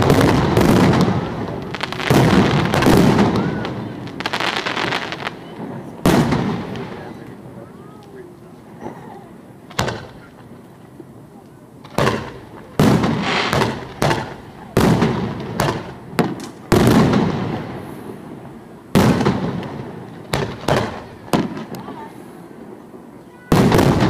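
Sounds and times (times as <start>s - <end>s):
firework shells bursting: 9.7s - 10.3s, 11.8s - 21.8s.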